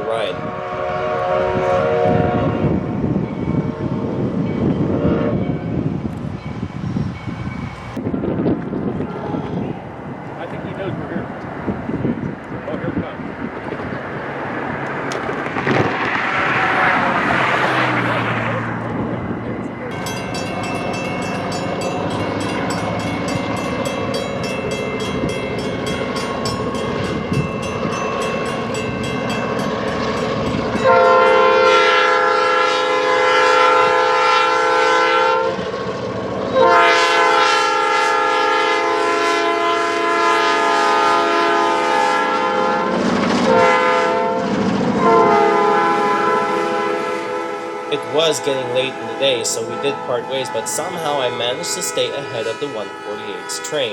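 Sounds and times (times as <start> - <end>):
locomotive horn blasts: 0.0 - 2.8, 4.9 - 5.8, 9.0 - 9.8, 19.9 - 35.7, 36.5 - 53.9.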